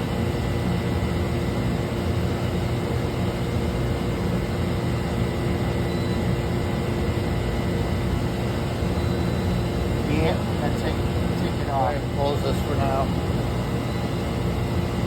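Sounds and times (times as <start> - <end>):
machinery droning: 8.1 - 15.0.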